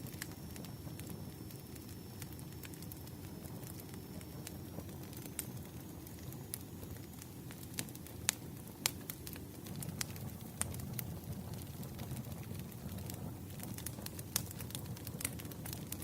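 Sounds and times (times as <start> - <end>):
campfire flames rushing: 0.0 - 16.0
logs popping and crackling: 0.0 - 16.0.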